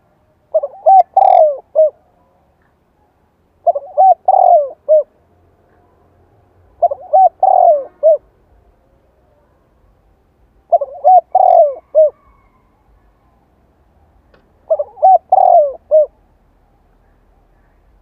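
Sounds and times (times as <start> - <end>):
dove cooing: 0.0 - 2.1, 3.6 - 5.2, 6.8 - 8.3, 10.7 - 13.4, 14.6 - 16.3.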